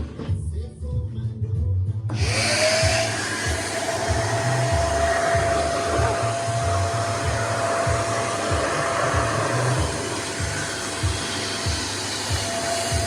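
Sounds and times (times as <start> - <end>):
vacuum cleaner blowing air: 2.1 - 13.0
low rumble: 3.8 - 11.2.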